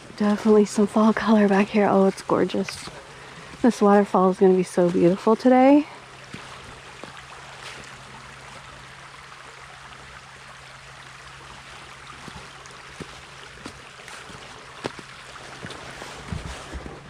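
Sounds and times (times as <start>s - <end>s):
stream rushing: 0.0s - 17.0s
footsteps on rock and leaves: 1.3s - 8.8s, 11.5s - 17.0s.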